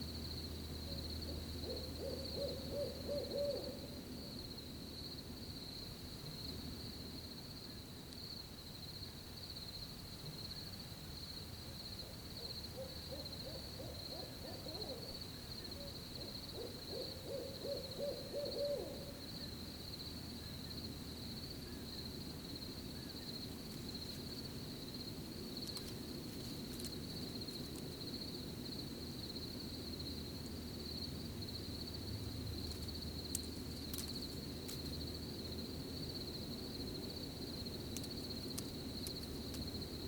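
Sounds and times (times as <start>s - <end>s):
crickets chirping: 0.0s - 40.0s
owl hooting: 0.9s - 4.0s, 12.0s - 19.5s.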